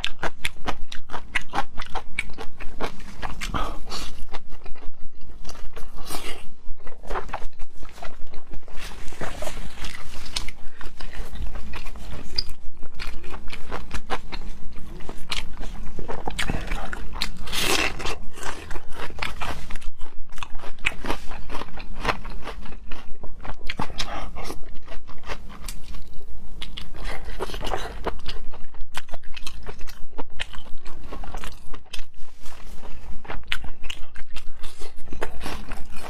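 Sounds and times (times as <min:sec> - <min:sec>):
person biting and chewing food: 0:00.0 - 0:36.0.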